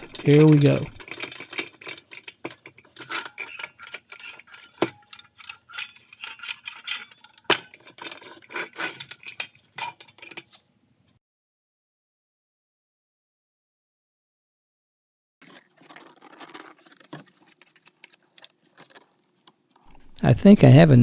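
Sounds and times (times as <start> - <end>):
small metal parts clicking: 0.0 - 10.6, 19.8 - 20.2.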